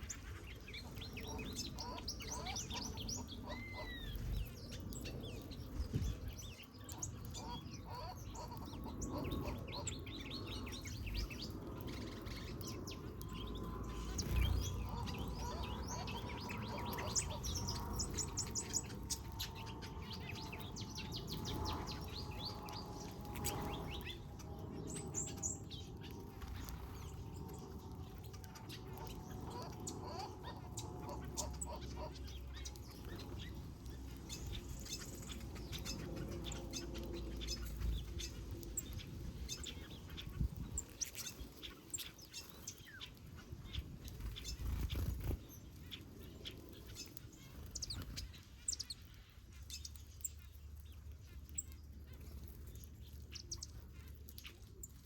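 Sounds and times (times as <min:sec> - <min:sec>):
small birds chirping and twittering: 0:00.0 - 0:55.0.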